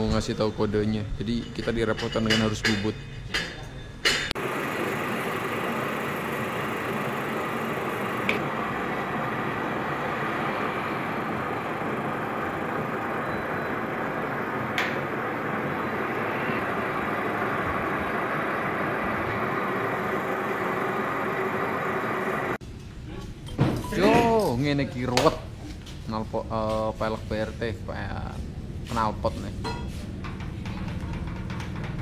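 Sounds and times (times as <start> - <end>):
metal lathe running: 4.4 - 22.6.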